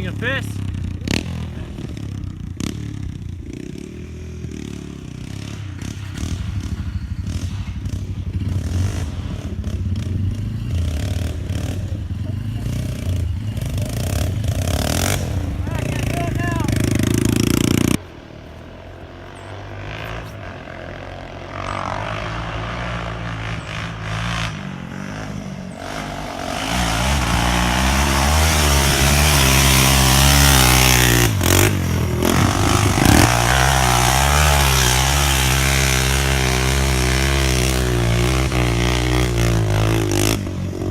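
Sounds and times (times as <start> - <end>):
dirt bike engine revving: 0.0 - 18.3, 19.0 - 40.9.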